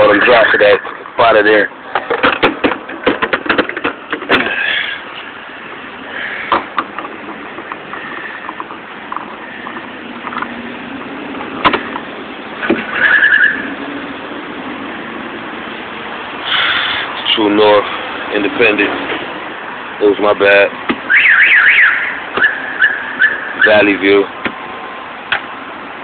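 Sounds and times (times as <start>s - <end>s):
handling knocks: 1.9s - 4.6s.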